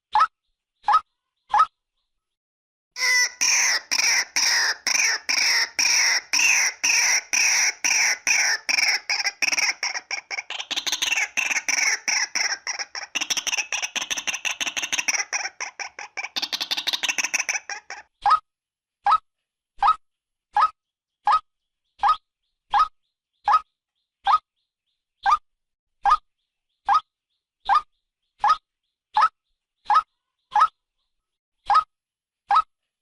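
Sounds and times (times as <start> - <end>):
waterhen calling: 3.0 - 18.0.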